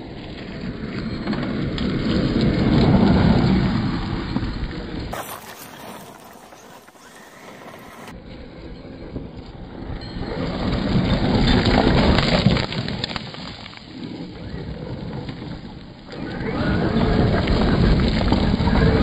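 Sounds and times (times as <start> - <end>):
toy truck tyres crunching gravel: 5.1 - 8.1, 10.6 - 16.4.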